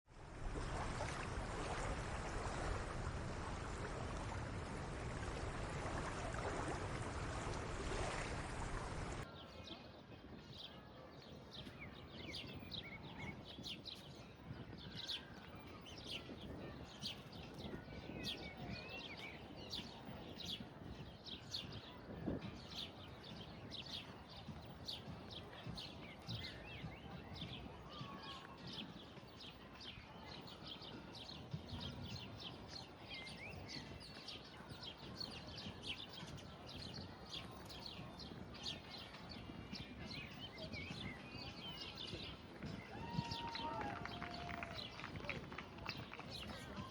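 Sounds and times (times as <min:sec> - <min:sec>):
small birds chirping: 0:10.6 - 0:45.2.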